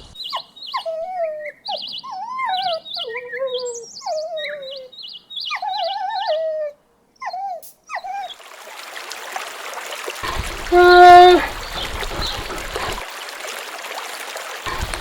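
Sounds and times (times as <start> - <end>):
puppy whimpering and whining: 0.3 - 4.9, 5.5 - 8.3
running water: 5.6 - 15.0.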